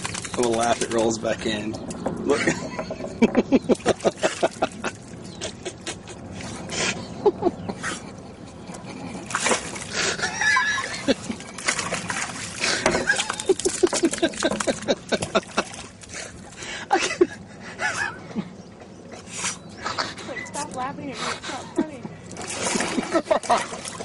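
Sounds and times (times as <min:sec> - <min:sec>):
water splashing: 0:00.0 - 0:07.0, 0:08.8 - 0:16.6, 0:22.2 - 0:24.0
person laughing: 0:02.3 - 0:08.2, 0:10.0 - 0:11.5, 0:12.8 - 0:15.9, 0:16.7 - 0:18.5, 0:22.7 - 0:23.8.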